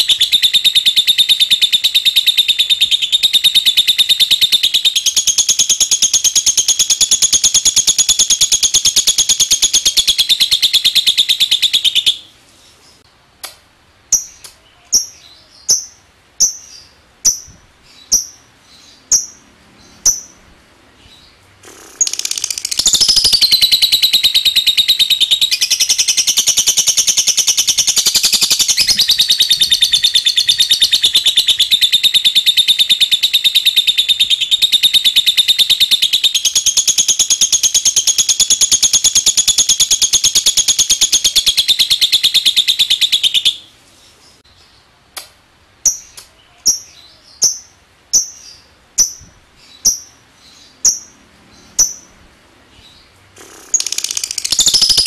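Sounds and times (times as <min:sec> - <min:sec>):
bird high-pitched trill: 0:00.0 - 0:12.3, 0:21.8 - 0:43.7, 0:45.9 - 0:52.2, 0:53.4 - 0:55.0.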